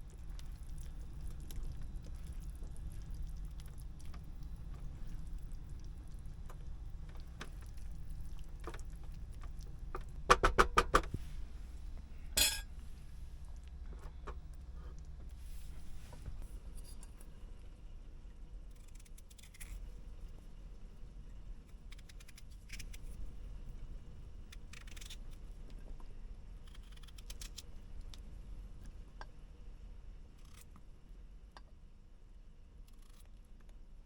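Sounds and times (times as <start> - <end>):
steady low hum: 0.0 - 10.3, 11.0 - 19.2.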